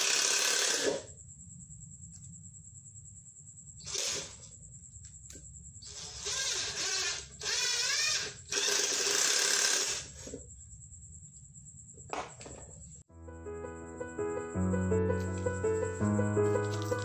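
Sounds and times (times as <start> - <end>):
cordless drill motor: 0.0 - 1.1, 3.8 - 4.4, 5.8 - 10.4.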